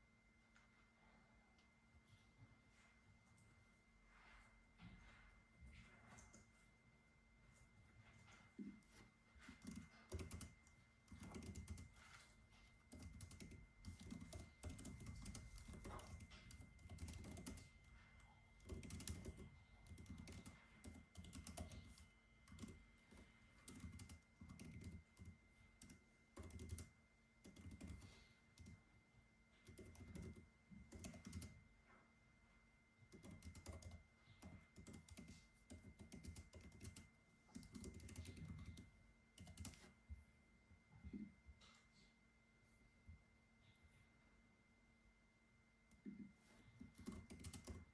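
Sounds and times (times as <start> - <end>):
soft keyboard typing: 6.0 - 6.7, 8.3 - 28.9, 29.5 - 31.7, 33.1 - 40.0, 45.9 - 47.9.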